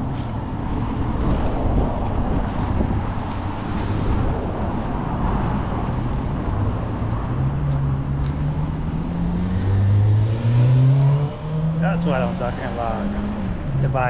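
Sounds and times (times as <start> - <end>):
outdoor traffic noise: 0.0 - 14.0
wind rumbling on microphone: 0.0 - 14.0
vehicle engine humming: 4.3 - 14.0.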